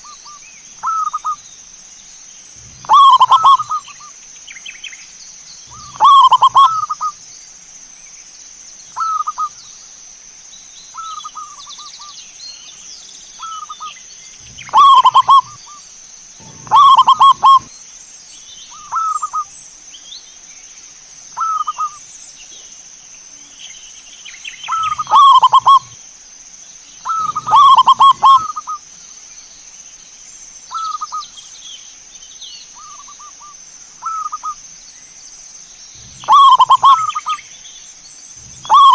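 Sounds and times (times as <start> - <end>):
high-pitched hiss: 0.0 - 38.9
doves cooing: 2.6 - 4.1, 5.7 - 7.1, 14.4 - 15.8, 16.4 - 17.7, 24.7 - 26.0, 27.0 - 28.8, 36.0 - 37.4, 38.4 - 38.9.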